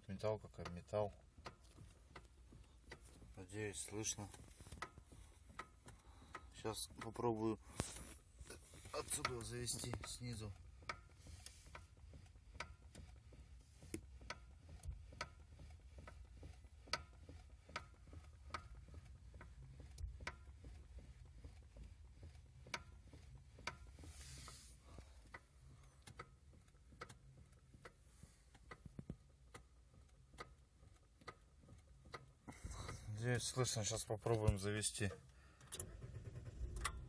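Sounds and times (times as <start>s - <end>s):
brief hiss: 24.1s - 25.0s.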